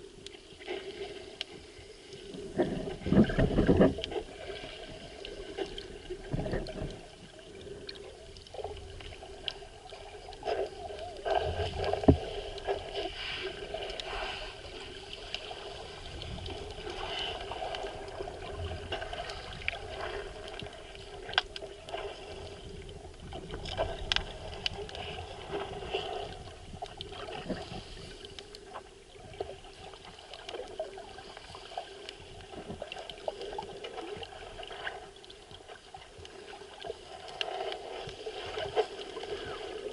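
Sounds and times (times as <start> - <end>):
muffled underwater wash: 0.0 - 39.9
sharp underwater clicks: 21.2 - 21.7.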